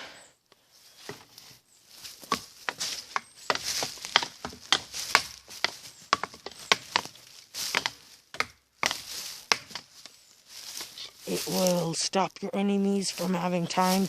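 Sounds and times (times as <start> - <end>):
wooden batons striking tree trunks: 2.0 - 11.8.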